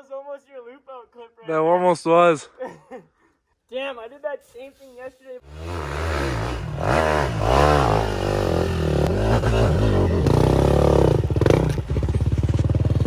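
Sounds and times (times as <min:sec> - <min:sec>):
dirt bike engine revving: 0:05.4 - 0:13.0.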